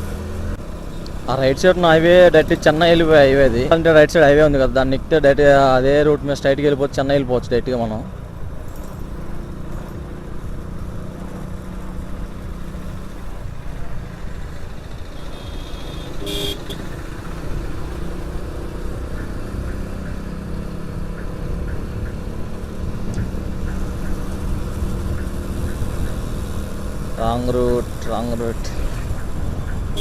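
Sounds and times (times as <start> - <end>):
motorcycle engine hum: 0.0 - 30.0
wind and road noise: 0.0 - 30.0
vehicle horn beep: 15.2 - 17.1.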